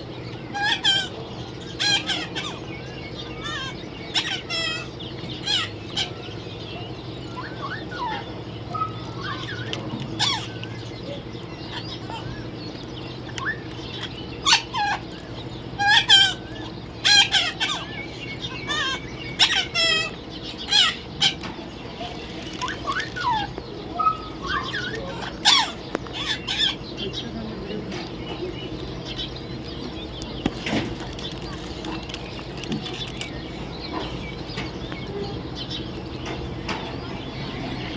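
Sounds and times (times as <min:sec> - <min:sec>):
steady low hum: 0:00.0 - 0:37.9
parrot screeching: 0:00.5 - 0:02.7, 0:03.4 - 0:06.2, 0:08.8 - 0:10.6, 0:13.4 - 0:15.1, 0:15.8 - 0:21.4, 0:22.6 - 0:26.8.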